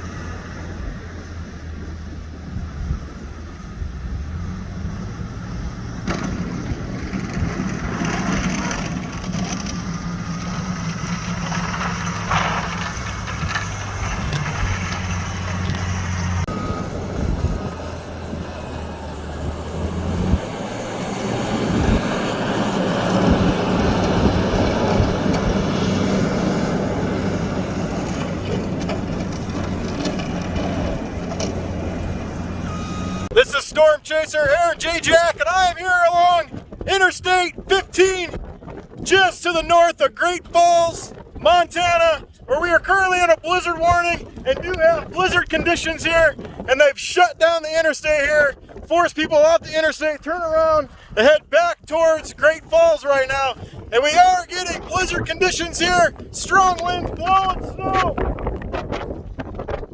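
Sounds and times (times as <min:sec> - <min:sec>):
constant rushing noise: 0:00.0 - 0:59.9.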